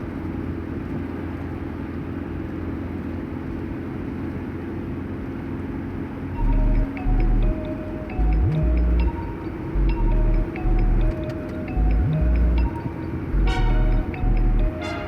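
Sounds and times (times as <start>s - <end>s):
low rumbling noise: 6.4s - 14.8s
music with deep bass: 6.4s - 15.0s.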